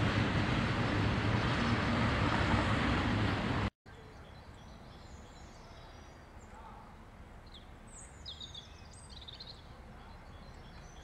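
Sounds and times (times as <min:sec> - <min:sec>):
freight train wheels on rails: 0:00.0 - 0:03.7.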